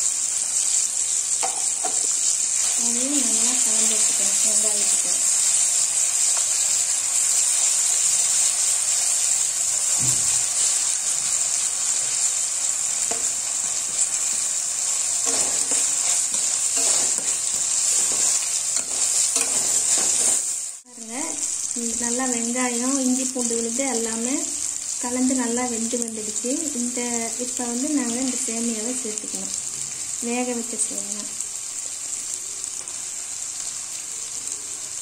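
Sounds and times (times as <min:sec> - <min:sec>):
onions sizzling in hot oil: 0:00.0 - 0:35.0
metal spoon scraping pan: 0:15.2 - 0:20.6.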